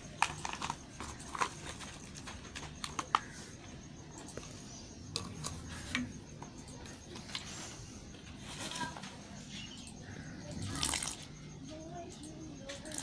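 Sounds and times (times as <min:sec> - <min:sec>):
soap bars clicking and crackling: 0:00.0 - 0:03.4.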